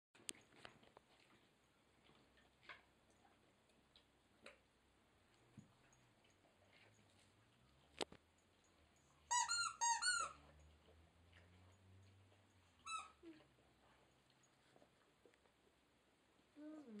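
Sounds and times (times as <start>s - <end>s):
squeaky ball toy squeaking: 9.3s - 10.4s, 12.8s - 13.2s.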